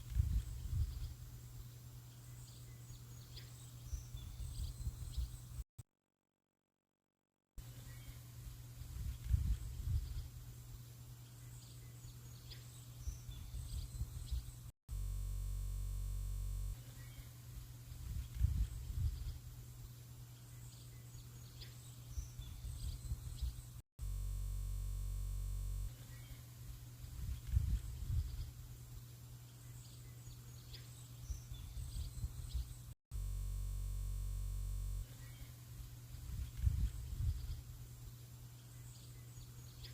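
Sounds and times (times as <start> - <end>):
faint bird chirps: 0.0 - 5.6, 16.8 - 19.6, 35.0 - 35.7.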